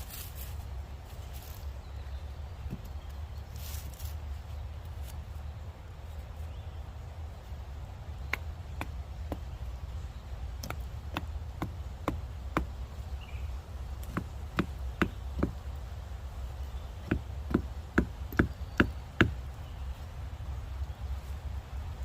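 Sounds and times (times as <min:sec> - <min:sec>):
hammer knocking wooden wedges: 0:08.3 - 0:09.5, 0:10.6 - 0:12.7, 0:14.0 - 0:15.6, 0:17.0 - 0:19.4.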